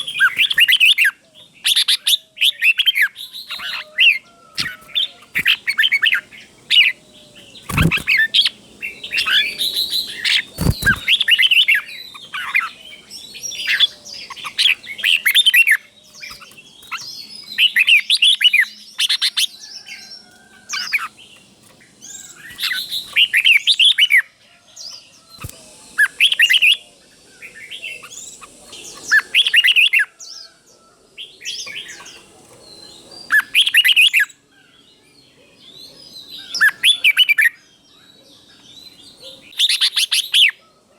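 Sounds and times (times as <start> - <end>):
bulbul singing: 0.0 - 30.6.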